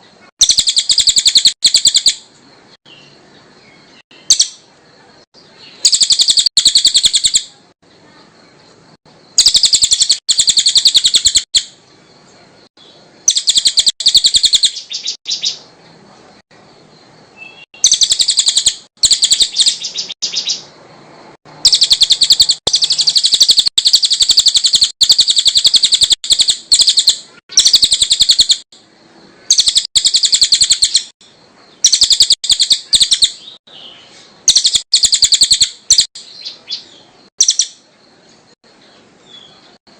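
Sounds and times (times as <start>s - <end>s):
songbird rattling trills: 0.4s - 2.2s, 4.2s - 4.7s, 5.8s - 7.5s, 9.3s - 11.8s, 13.2s - 15.6s, 17.5s - 20.7s, 21.5s - 28.7s, 29.4s - 31.1s, 31.8s - 33.4s, 34.4s - 36.6s, 37.4s - 37.8s.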